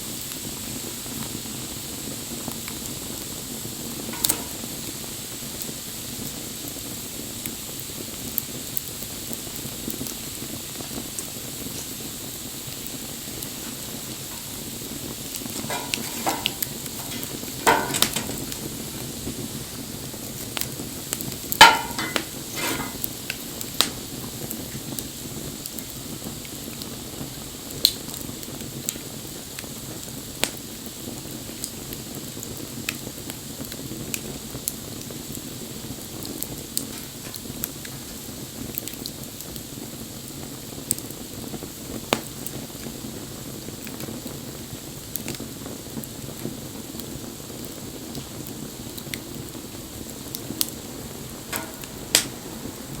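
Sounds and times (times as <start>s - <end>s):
bonfire crackling and popping: 0.0s - 53.0s.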